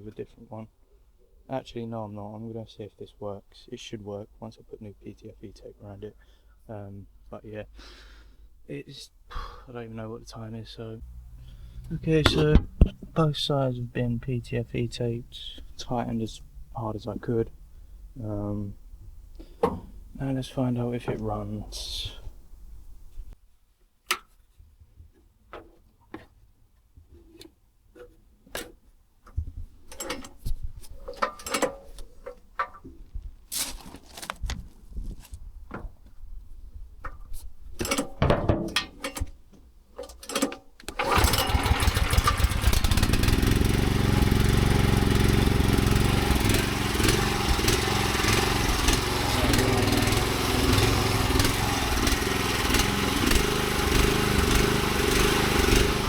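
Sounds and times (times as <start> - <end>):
pressure washer engine running: 11.0 - 13.5, 41.0 - 56.0
equipment clicks and knocks: 12.2 - 13.2.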